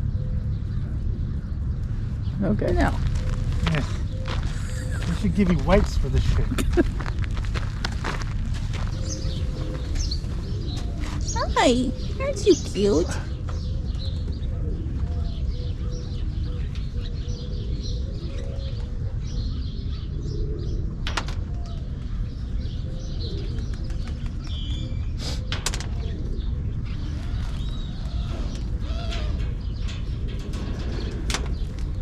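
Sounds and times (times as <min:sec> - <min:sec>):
small birds chirping: 0:00.0 - 0:20.8
steady low rumble: 0:00.0 - 0:25.1, 0:25.8 - 0:32.0
pigeons cooing: 0:02.2 - 0:32.0.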